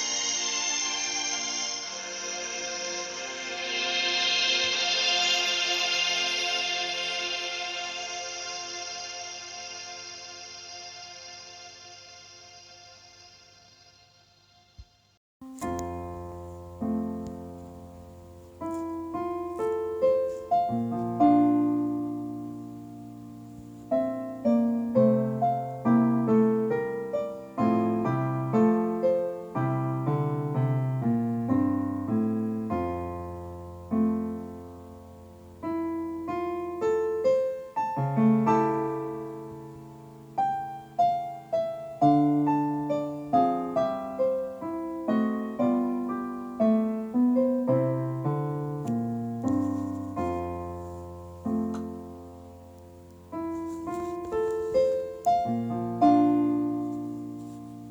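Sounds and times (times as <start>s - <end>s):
solo piano melody: 15.4s - 57.9s.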